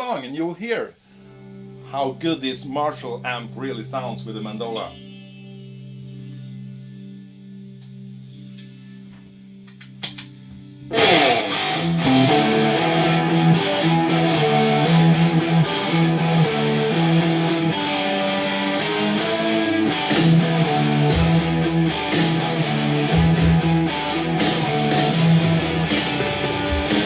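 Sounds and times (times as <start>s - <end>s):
distorted electric mandola riffing: 1.2s - 27.0s
heavy metal music: 10.9s - 27.0s.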